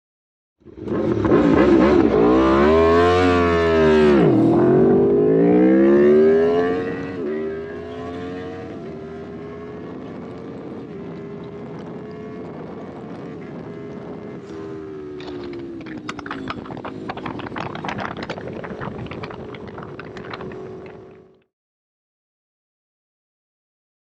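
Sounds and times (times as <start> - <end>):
motorcycle engines accelerating: 0.6 - 21.4
quick gear upshifts: 0.7 - 21.4.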